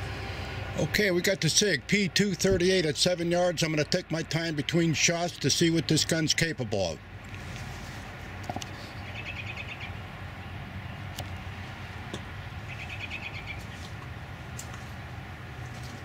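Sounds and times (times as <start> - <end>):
low outdoor rumble: 0.0 - 16.0
songbird trilling: 9.0 - 10.0, 12.7 - 13.8.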